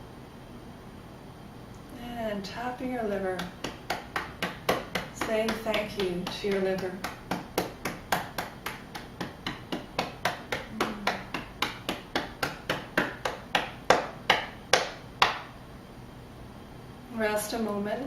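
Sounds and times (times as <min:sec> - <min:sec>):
fingertips tapping on body: 0:03.1 - 0:15.5.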